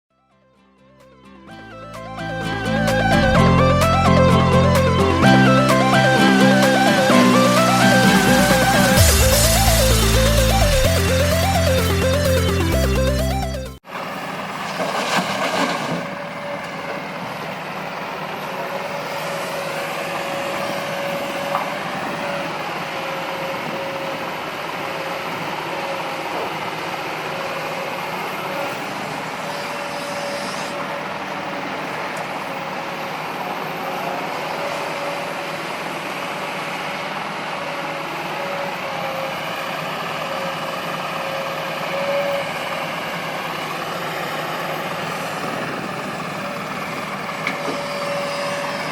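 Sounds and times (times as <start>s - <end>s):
diesel engines running: 1.4s - 48.9s
steady whine: 1.5s - 13.8s.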